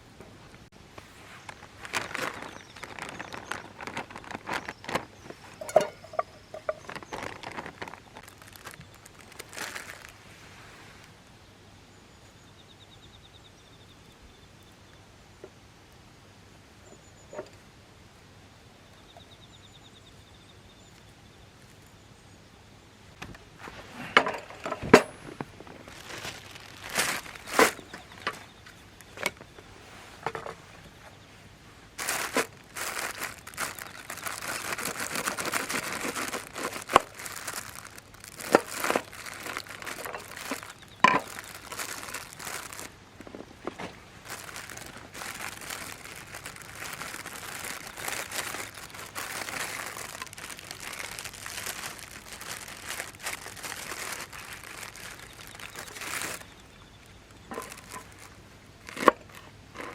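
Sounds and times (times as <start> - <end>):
crinkling and rustling: 0.0 - 11.2, 23.1 - 59.9.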